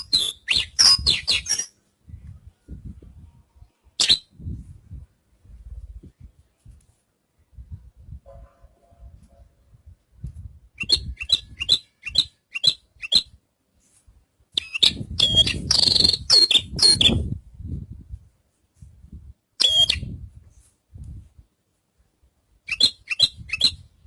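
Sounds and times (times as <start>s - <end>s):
bushlark singing: 0.0s - 1.8s, 10.8s - 13.3s, 14.6s - 17.3s, 19.6s - 20.2s, 22.7s - 23.9s.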